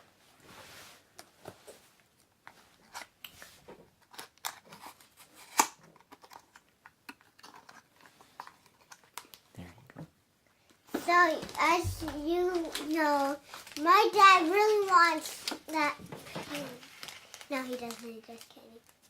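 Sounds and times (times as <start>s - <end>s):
packaging rustling and clicking: 10.9s - 13.9s, 14.6s - 19.0s.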